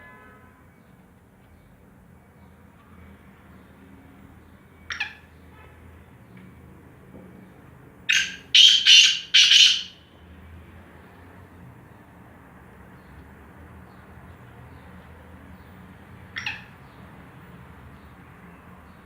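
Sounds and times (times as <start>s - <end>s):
francolin calling: 4.9s - 5.3s, 8.1s - 10.0s, 16.4s - 16.8s.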